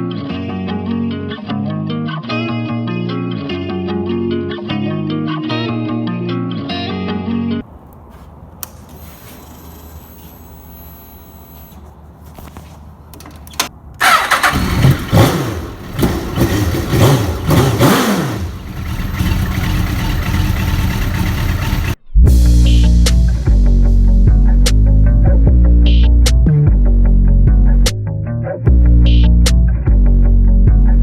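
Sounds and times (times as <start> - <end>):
motorcycle engine revving and idling: 14.0 - 22.0.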